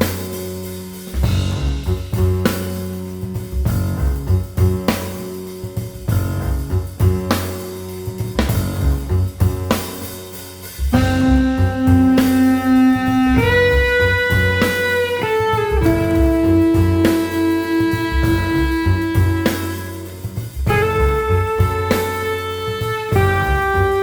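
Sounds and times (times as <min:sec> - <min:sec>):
bass line: 0:00.0 - 0:24.0
drum kit with cymbals: 0:00.0 - 0:24.0
sustained lead melody notes: 0:10.9 - 0:24.0.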